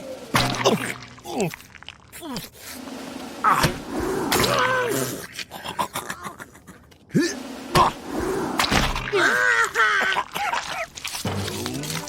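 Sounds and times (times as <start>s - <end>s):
cartoon voices grunting and exclaiming: 9.1s - 10.9s.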